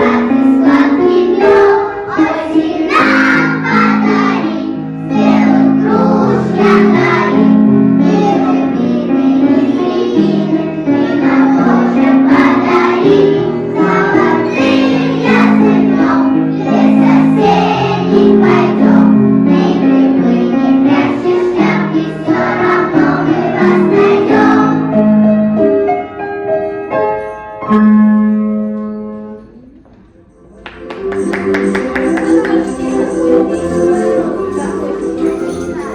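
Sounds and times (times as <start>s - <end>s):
children singing: 0.0s - 24.8s, 31.5s - 35.9s
instrumental accompaniment: 26.8s - 35.9s.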